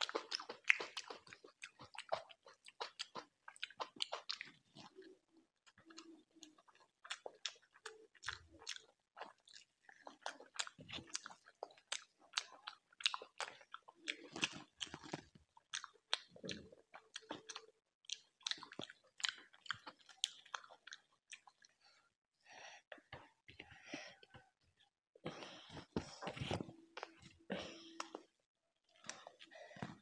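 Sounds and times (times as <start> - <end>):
close chewing with wet mouth clicks: 0.0 - 21.8.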